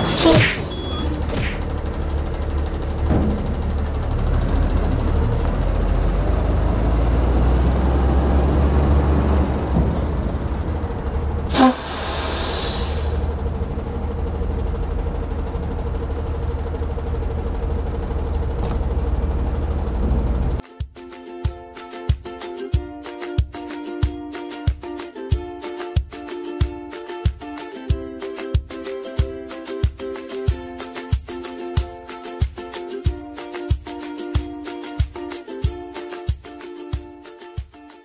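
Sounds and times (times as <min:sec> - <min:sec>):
air brake hiss: 0:00.0 - 0:01.1, 0:11.5 - 0:13.4
diesel truck engine running: 0:00.0 - 0:20.6.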